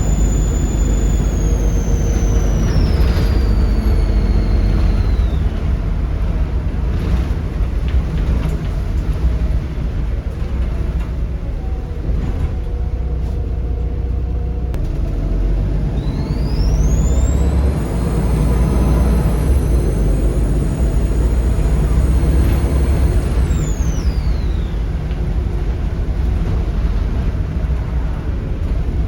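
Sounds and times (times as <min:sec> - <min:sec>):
turbo whistle: 0:00.0 - 0:05.9, 0:15.9 - 0:25.1
diesel bus engine rumbling: 0:00.0 - 0:29.0.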